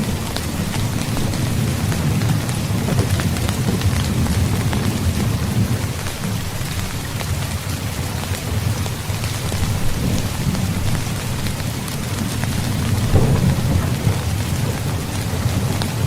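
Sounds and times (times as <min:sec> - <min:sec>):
heavy rain falling: 0:00.0 - 0:16.0
rolling thunder rumble: 0:00.0 - 0:16.0.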